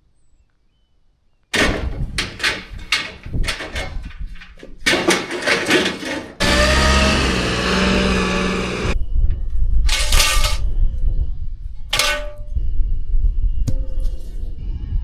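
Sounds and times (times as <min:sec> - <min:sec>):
hard objects clattering: 0:02.2 - 0:08.9
steady mechanical hum: 0:06.4 - 0:09.0.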